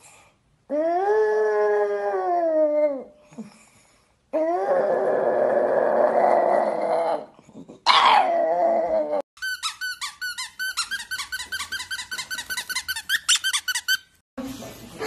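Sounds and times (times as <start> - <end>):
squeaky toy squeaking: 9.4 - 14.2.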